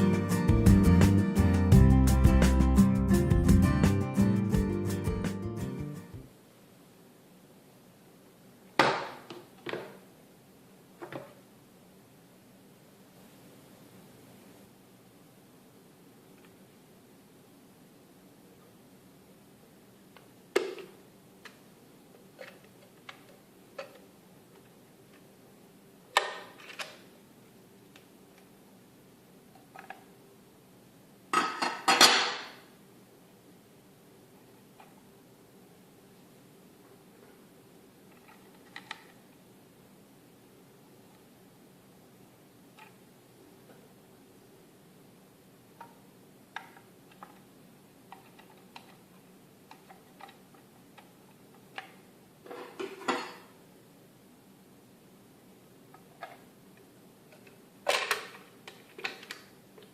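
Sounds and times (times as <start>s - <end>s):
plastic parts clicking: 49.7s - 52.0s, 57.3s - 59.5s.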